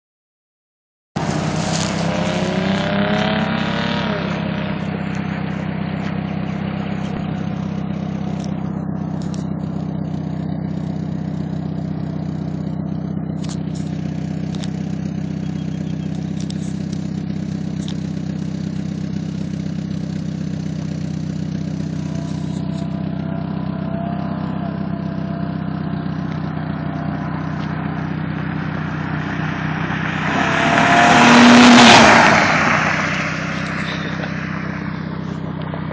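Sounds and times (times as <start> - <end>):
car exhaust droning: 1.2 - 35.9
car driving past: 26.2 - 35.9.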